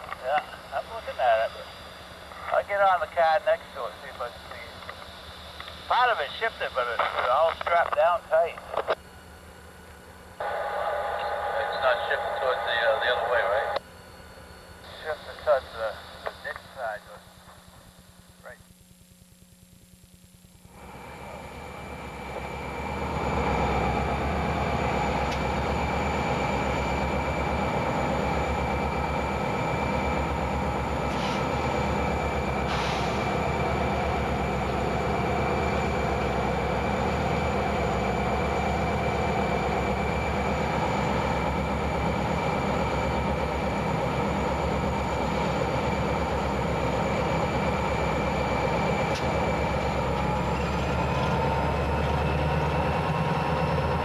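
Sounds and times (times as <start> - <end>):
diesel locomotive engines idling: 0.0 - 18.7, 20.6 - 54.0.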